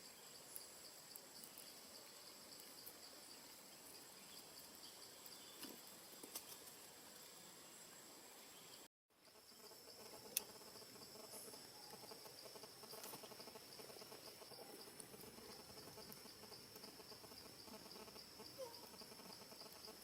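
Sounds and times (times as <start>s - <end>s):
high-pitched insect chirring: 9.3s - 20.0s.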